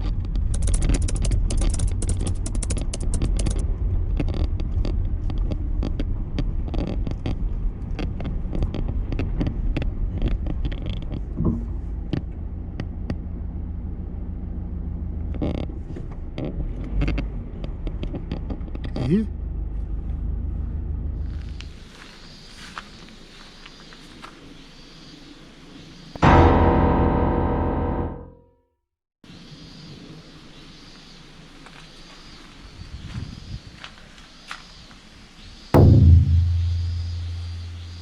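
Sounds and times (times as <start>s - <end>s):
scattered clicks and knocks: 0.0s - 12.2s
low rumble: 26.2s - 28.4s, 35.8s - 38.0s.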